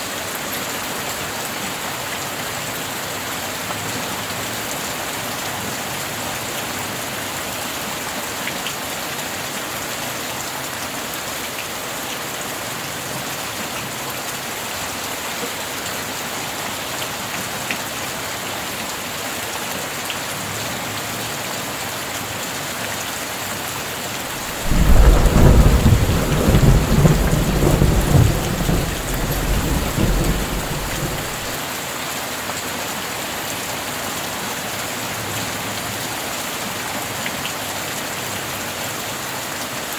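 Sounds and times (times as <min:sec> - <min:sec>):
steady rain: 0:00.0 - 0:39.9
thunder clap rumbling: 0:24.4 - 0:31.6.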